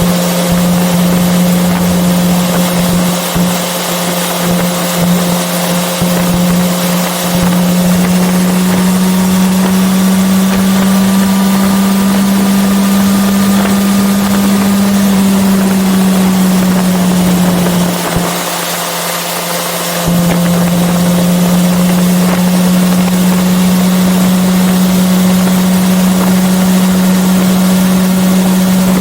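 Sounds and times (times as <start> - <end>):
motorcycle engine running: 0.0 - 29.0
wind rushing over microphone: 0.0 - 29.0.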